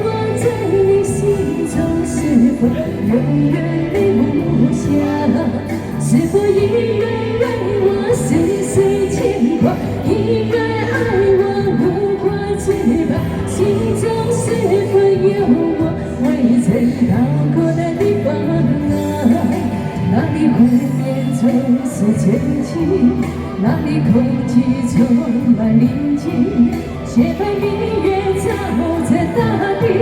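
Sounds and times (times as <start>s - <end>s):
backing track with bass: 0.0s - 30.0s
person singing slow pop song: 0.0s - 30.0s.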